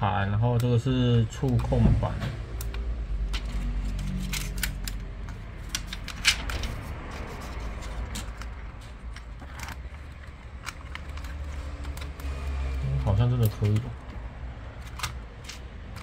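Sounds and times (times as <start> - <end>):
plastic parts clicking: 2.5 - 6.8, 7.5 - 16.0.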